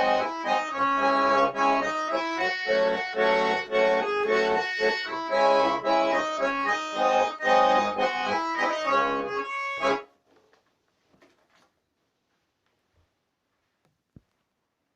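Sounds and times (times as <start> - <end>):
button accordion playing: 0.0 - 10.1.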